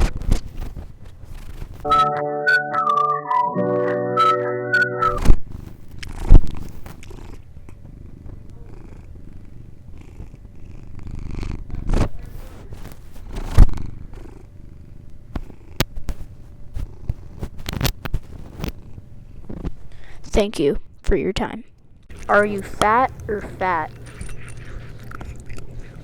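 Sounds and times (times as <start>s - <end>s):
cat purring: 6.0s - 19.6s, 22.1s - 26.0s.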